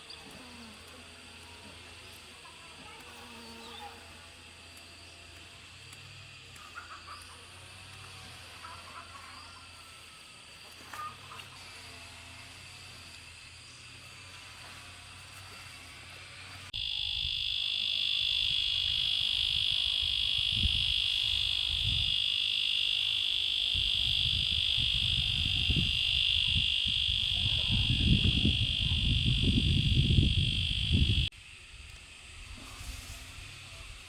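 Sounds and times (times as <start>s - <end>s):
insect chorus shrill drone: 0.0s - 15.8s, 16.8s - 31.3s
low rumbling buffeting: 18.2s - 31.3s.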